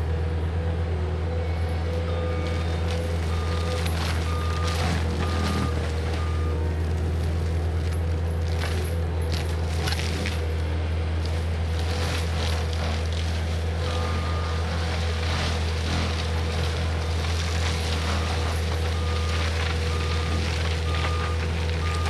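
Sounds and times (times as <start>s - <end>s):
diesel engine running: 0.0s - 22.0s
forestry mulcher working: 0.0s - 22.0s
short beeps: 19.9s - 22.0s.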